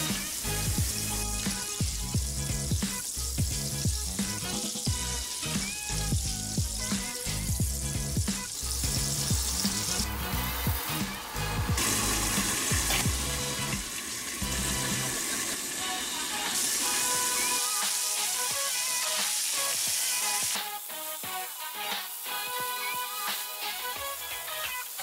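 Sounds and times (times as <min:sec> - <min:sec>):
background music with a beat: 0:00.0 - 0:25.0
steaks sizzling in a pan: 0:00.0 - 0:25.0.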